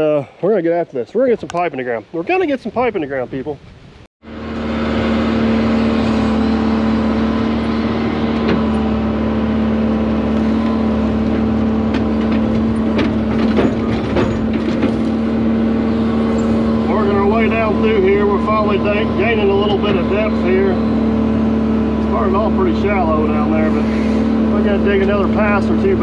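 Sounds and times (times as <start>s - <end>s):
excavator diesel engine humming: 4.2s - 26.0s
bucket knocking and scraping: 10.4s - 16.8s.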